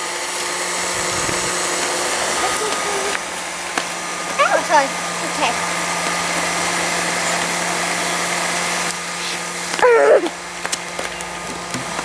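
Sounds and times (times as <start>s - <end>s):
bubble machine fan humming: 0.0s - 12.0s
short high wavering cry: 9.8s - 10.4s.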